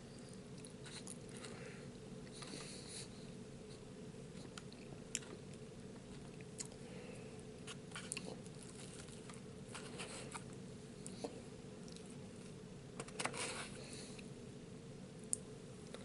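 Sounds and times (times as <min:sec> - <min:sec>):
steady low hum: 0:00.0 - 0:16.0
person chewing food: 0:00.2 - 0:01.6, 0:04.3 - 0:06.8, 0:07.6 - 0:12.5.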